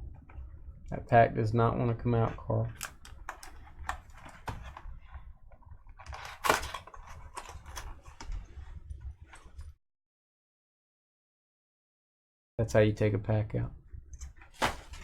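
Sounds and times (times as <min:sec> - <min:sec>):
card box and foil pack crinkling: 0:06.0 - 0:08.3, 0:14.4 - 0:15.0.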